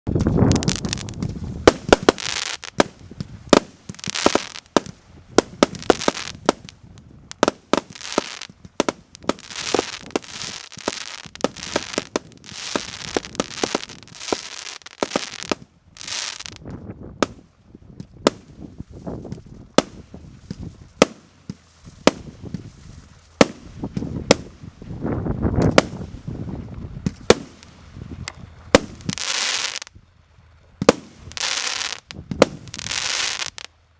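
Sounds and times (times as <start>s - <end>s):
fireworks reports: 0.1s - 16.6s, 25.5s - 26.1s.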